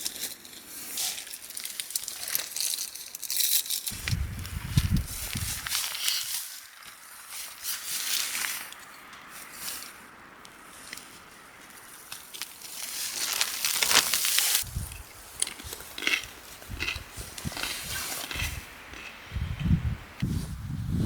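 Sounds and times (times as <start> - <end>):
hissing noise: 3.9 - 5.8
footsteps crunching through snow: 3.9 - 8.7, 9.3 - 14.9.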